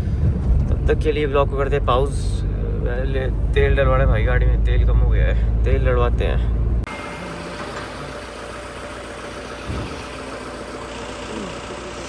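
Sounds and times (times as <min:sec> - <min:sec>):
vehicle engine idling: 0:00.0 - 0:12.0
low thump: 0:09.6 - 0:10.1.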